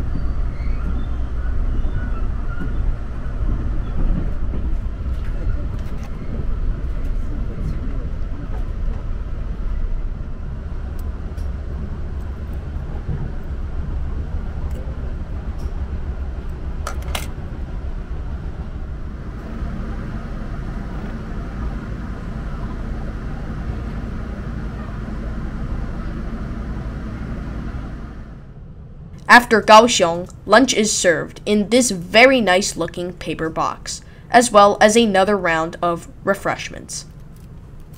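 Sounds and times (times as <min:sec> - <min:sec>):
train rumbling inside carriage: 0:00.0 - 0:37.9.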